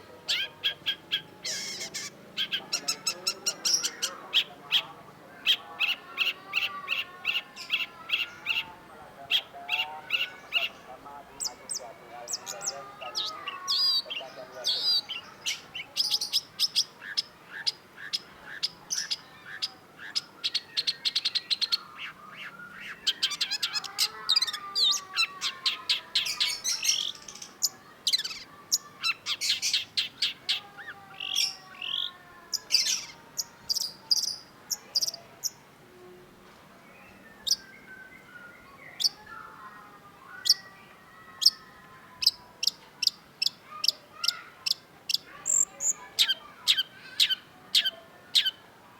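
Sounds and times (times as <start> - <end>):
bird chattering notes: 0.3 - 8.7, 42.2 - 48.6.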